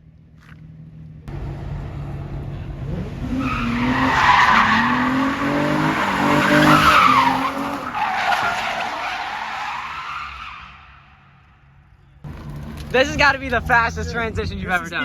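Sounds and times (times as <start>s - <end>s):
car engine revving: 0.6s - 14.5s
tyres squealing: 3.2s - 11.2s.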